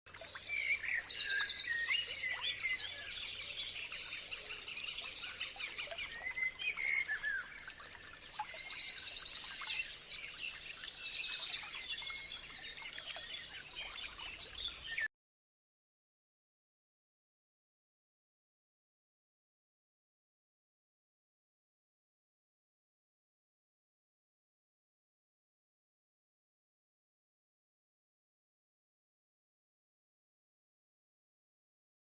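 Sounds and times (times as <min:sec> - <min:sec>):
songbirds singing and chirping: 0:00.1 - 0:15.1.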